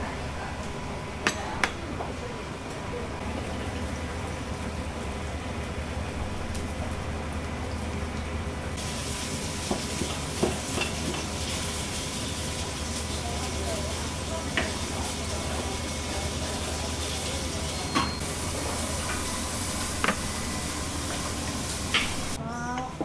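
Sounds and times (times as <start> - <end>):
low kitchen hum: 0.0 - 23.0
food sizzling while frying: 3.2 - 22.4.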